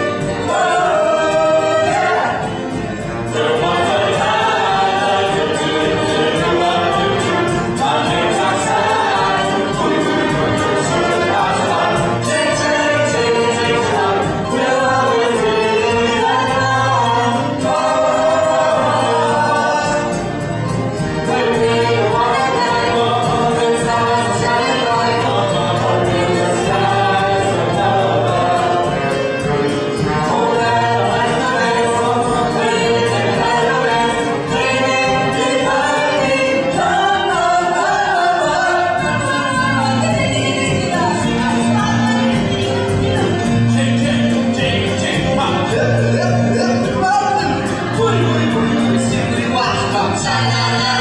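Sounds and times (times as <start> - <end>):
chorus singing: 0.0 - 51.0
live band with steady beat: 0.0 - 51.0.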